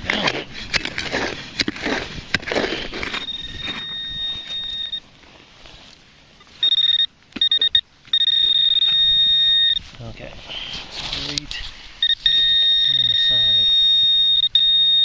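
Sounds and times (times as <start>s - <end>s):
shovel digging in sandy soil: 0.0s - 4.6s
metal detector tone and beeps: 3.1s - 5.1s, 6.6s - 9.8s, 12.0s - 15.0s.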